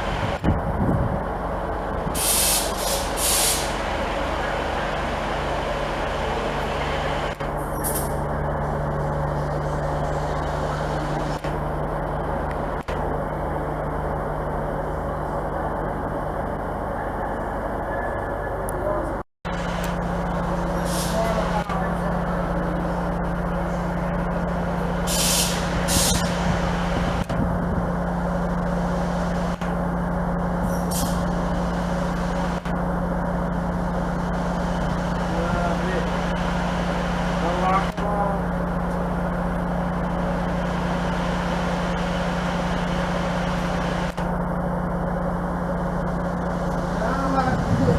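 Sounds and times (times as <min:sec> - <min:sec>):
train running with low hum: 0:00.0 - 0:47.9
air hissing: 0:02.1 - 0:03.8, 0:20.7 - 0:21.4, 0:25.0 - 0:26.8.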